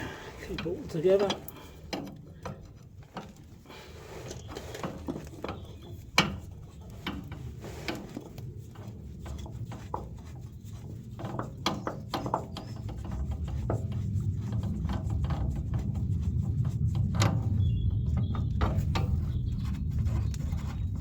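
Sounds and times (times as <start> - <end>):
low rumble: 13.0 - 21.0.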